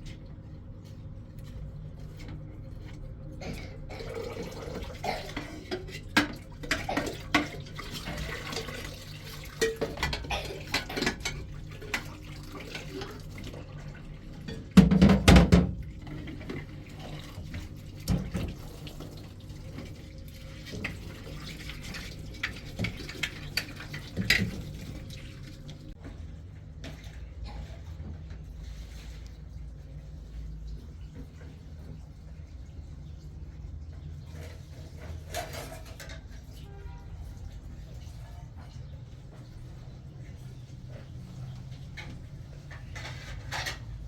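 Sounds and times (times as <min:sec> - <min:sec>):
water running: 0:00.0 - 0:26.2
dishes and pots clinking: 0:03.4 - 0:13.6, 0:14.3 - 0:19.2, 0:20.7 - 0:25.1, 0:34.3 - 0:37.1, 0:41.1 - 0:44.0.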